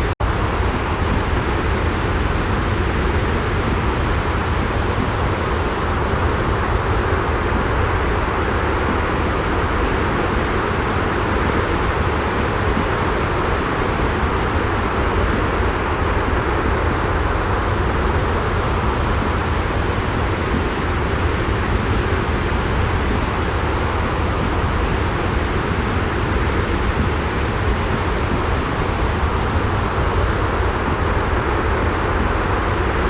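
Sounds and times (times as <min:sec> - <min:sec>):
white noise rumbling hiss: 0:00.0 - 0:33.0.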